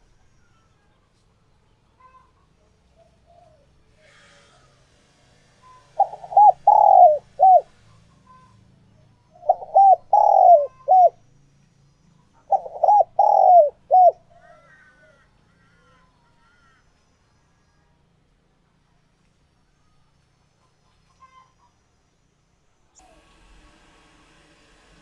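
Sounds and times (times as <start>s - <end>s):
dove cooing: 5.8s - 7.7s, 9.4s - 11.2s, 12.5s - 15.2s
faint high chirps: 9.5s - 11.2s.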